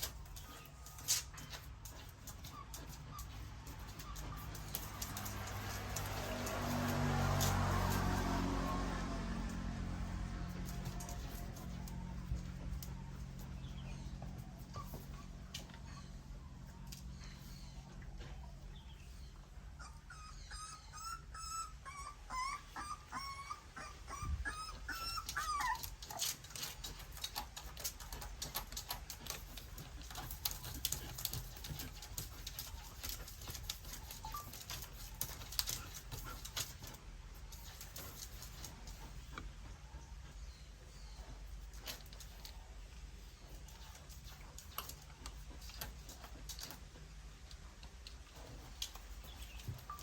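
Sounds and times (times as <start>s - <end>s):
puppies whimpering: 0.0s - 6.9s, 10.2s - 37.0s
puppies suckling clicks and smacks: 0.0s - 19.6s, 22.0s - 50.0s.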